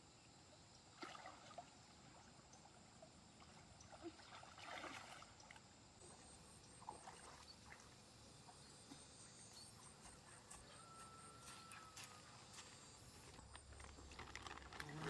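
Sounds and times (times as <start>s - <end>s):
faint stream water: 0.0s - 15.0s
soft splashing: 3.4s - 5.6s.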